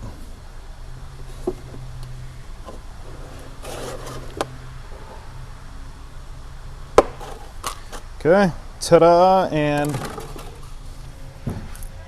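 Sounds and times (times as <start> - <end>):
blade scraping plastic: 3.2 - 4.5.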